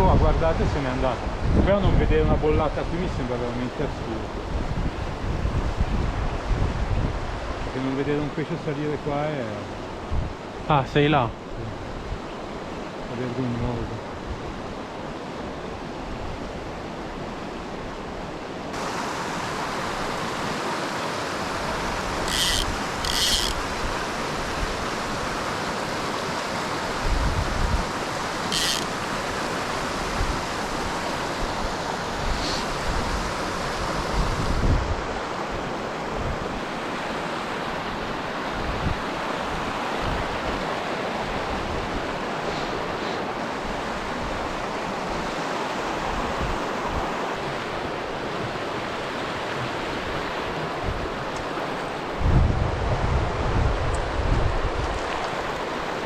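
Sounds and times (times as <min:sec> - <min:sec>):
wind on microphone: 0:04.4 - 0:07.6, 0:10.0 - 0:10.5, 0:21.4 - 0:36.7, 0:38.5 - 0:40.6, 0:41.3 - 0:56.0
water rushing over rocks: 0:18.7 - 0:52.8, 0:53.4 - 0:56.0.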